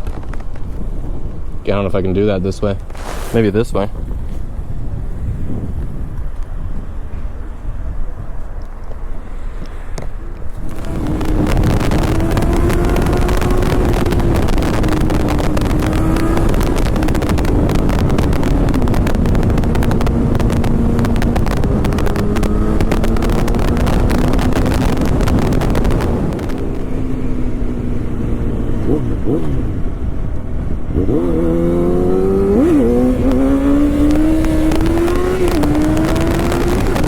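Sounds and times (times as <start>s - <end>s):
wind buffeting microphone: 0.0s - 37.0s
motorcycle engine running: 10.5s - 37.0s.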